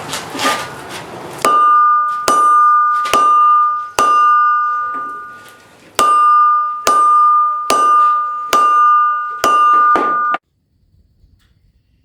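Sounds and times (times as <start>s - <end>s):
anvil ringing: 1.4s - 10.4s
hammer striking anvil: 1.4s - 10.4s.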